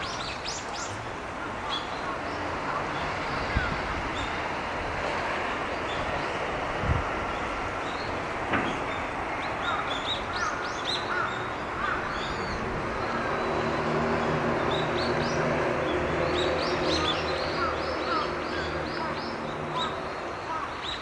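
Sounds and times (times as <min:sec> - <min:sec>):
passing vehicle engine hum: 0:11.2 - 0:20.6.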